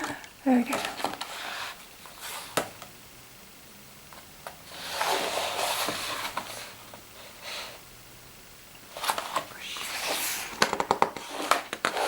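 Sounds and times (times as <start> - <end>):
paper catalogue pages turning: 8.9 - 12.0.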